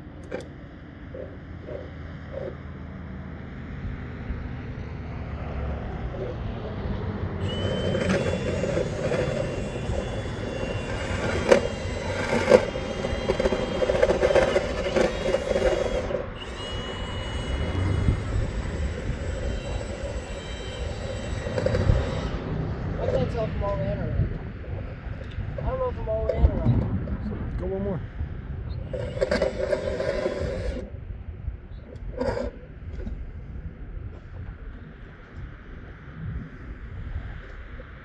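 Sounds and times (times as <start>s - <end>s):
rotary brush motor whine: 0.0s - 37.8s
brush rattling and scraping in duct: 7.4s - 22.4s, 28.9s - 30.9s, 32.0s - 33.3s.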